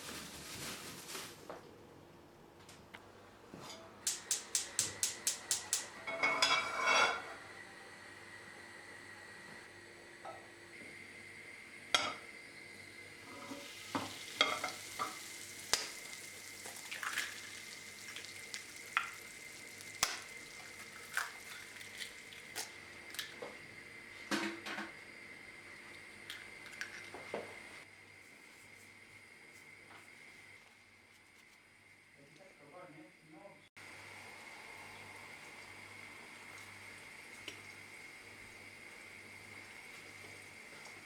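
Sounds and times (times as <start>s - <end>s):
food sizzling in a pan: 4.2s - 7.6s, 10.7s - 23.5s, 33.8s - 41.0s.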